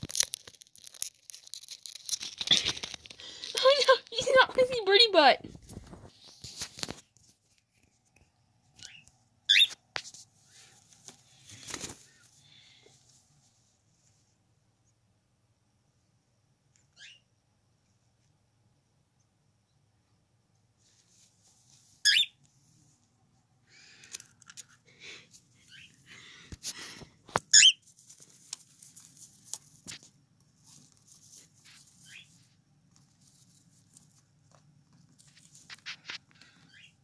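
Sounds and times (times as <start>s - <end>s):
cockatiel chirping: 8.8s - 9.8s, 16.9s - 17.2s, 22.0s - 22.4s, 25.7s - 26.0s, 27.5s - 27.8s, 32.0s - 32.4s, 36.7s - 37.0s
scratchy rustling: 27.8s - 36.6s.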